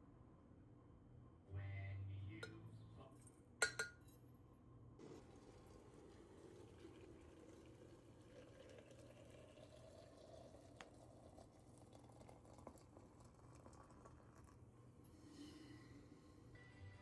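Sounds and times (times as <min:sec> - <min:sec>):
liquid pouring into glass: 0:05.0 - 0:14.6.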